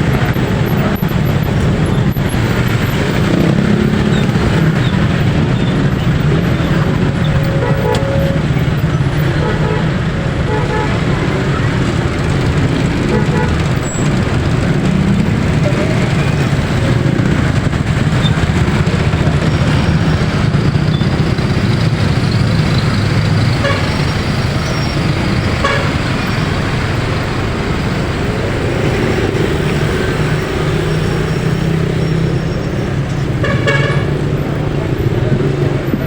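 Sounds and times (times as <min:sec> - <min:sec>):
vehicle engine running: 0:00.0 - 0:36.0
car horn beeps: 0:05.8 - 0:11.3, 0:13.0 - 0:13.7, 0:23.4 - 0:24.3, 0:25.4 - 0:26.3, 0:33.4 - 0:34.2.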